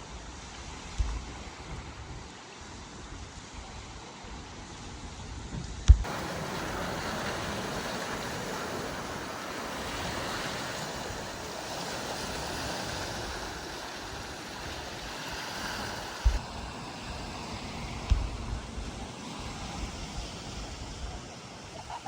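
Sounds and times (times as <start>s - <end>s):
wind: 0.0s - 22.0s
water rushing: 6.0s - 22.0s.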